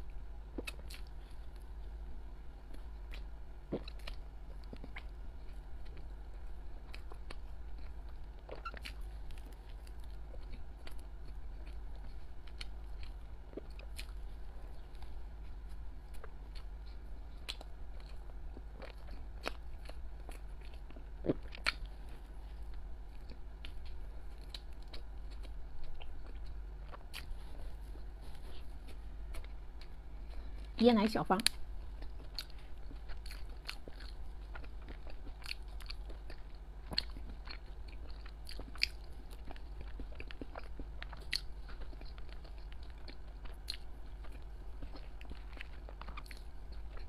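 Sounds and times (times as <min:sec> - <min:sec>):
chewing sticky pastry: 0:00.0 - 0:47.0
steady low hum: 0:00.0 - 0:47.0.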